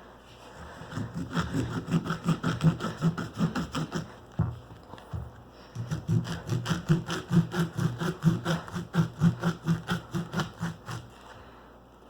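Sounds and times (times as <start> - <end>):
blade sawing back and forth: 0.6 - 4.2, 5.7 - 11.2.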